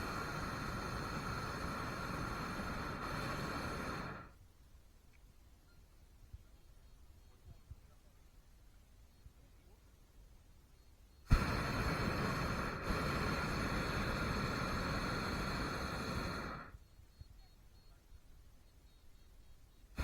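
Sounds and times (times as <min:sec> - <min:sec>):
propane burner blast: 0:00.0 - 0:04.3, 0:11.3 - 0:16.8.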